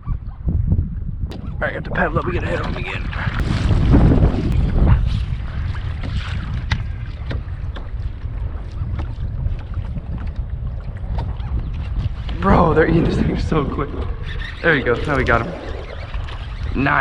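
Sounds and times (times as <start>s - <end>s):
wind buffeting microphone: 0.0s - 17.0s
water splashing from paddling: 2.5s - 13.3s, 13.9s - 17.0s
paddle clicks: 6.0s - 12.5s.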